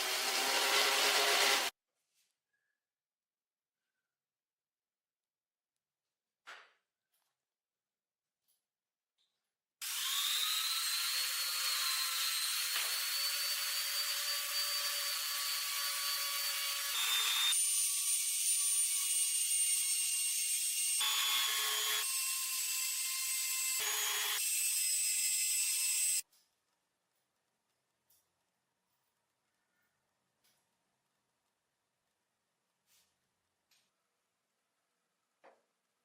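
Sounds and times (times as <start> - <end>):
electric power tool whining: 0.0 - 1.7, 9.8 - 19.0, 20.9 - 24.4.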